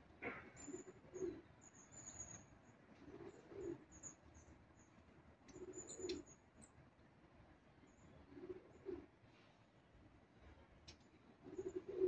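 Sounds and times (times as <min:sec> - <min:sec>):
pigeon cooing: 0:00.7 - 0:01.4, 0:03.0 - 0:03.8, 0:08.3 - 0:09.1, 0:11.4 - 0:12.0.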